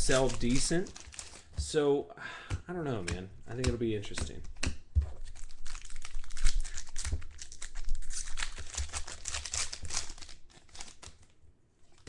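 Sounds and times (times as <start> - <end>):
foil wrappers crinkling and tearing: 0.0 - 1.6, 5.2 - 12.0.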